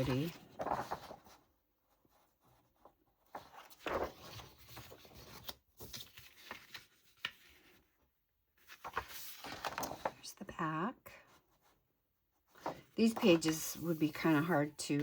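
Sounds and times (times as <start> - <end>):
paper rustling: 0.0 - 1.4, 2.1 - 7.8, 8.6 - 10.3, 12.5 - 15.0.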